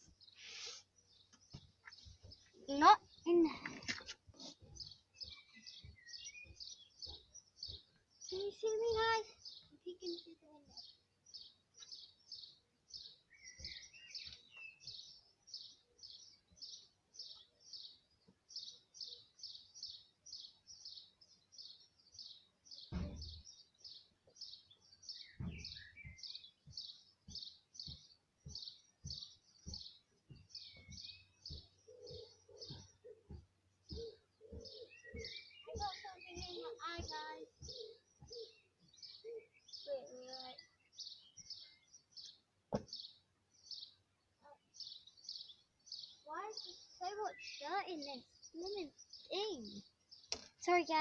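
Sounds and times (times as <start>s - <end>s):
small bird chirping: 0.0s - 51.0s
light knocks: 42.7s - 43.0s.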